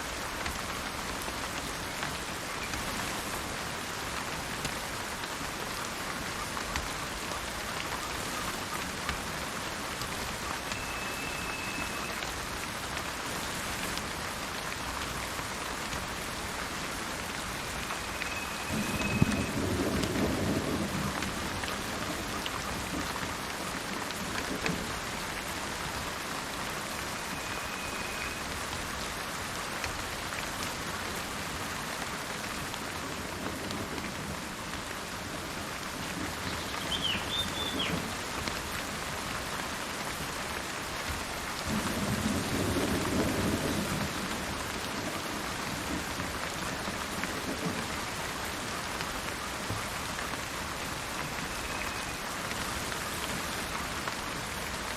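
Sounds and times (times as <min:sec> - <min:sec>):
steady rain: 0:00.0 - 0:54.9
thunder rumbling: 0:18.0 - 0:23.1
bird chirps: 0:36.5 - 0:38.0.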